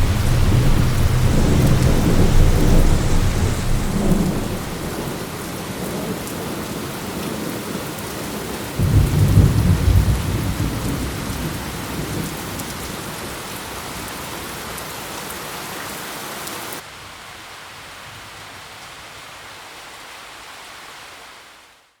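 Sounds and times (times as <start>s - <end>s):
thunder rumbling: 0.0s - 6.2s, 8.8s - 12.5s
heavy rain falling: 0.0s - 18.0s.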